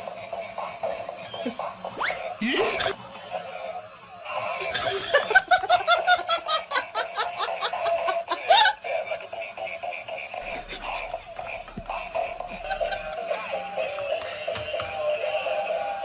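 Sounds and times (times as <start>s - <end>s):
person laughing: 2.4s - 14.0s.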